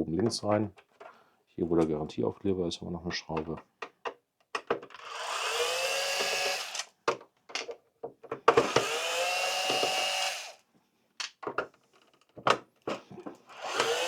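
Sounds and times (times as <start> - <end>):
electric screwdriver motor spinning: 5.0 - 6.9, 8.6 - 10.6, 13.5 - 14.0.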